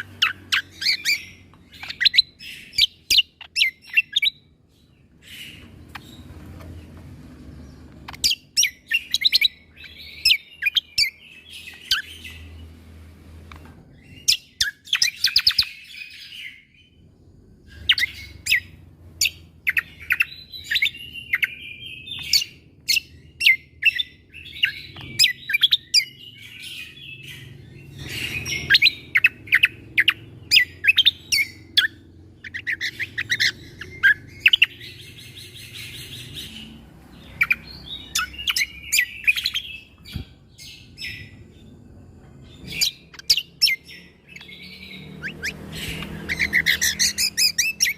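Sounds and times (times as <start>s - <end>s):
songbird singing sharp notes: 17.7s - 41.7s, 42.4s - 47.9s.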